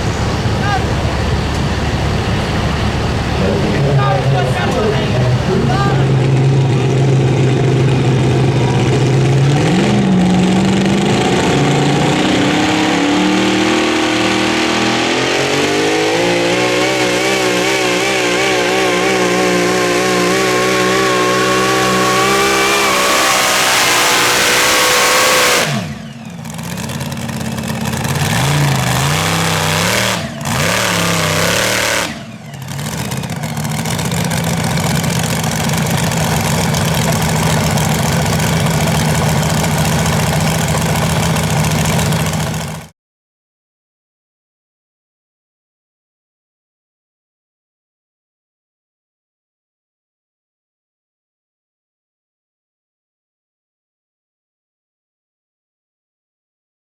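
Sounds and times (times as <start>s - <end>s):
truck engine at full throttle: 0.0s - 42.9s.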